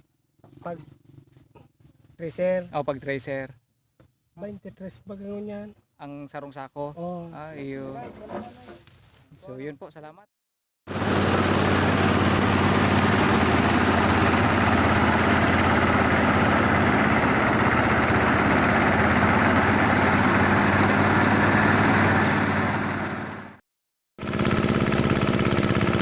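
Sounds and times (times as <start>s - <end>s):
harvester engine running: 10.9s - 23.6s, 24.2s - 26.0s.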